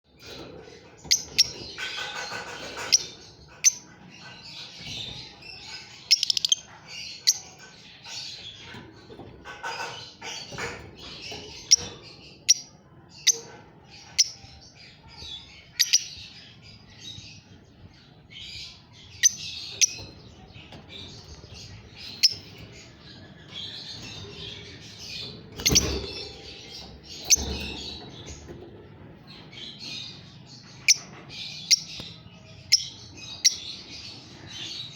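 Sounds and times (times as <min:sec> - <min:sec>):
lovebirds chirping: 0:00.1 - 0:34.9.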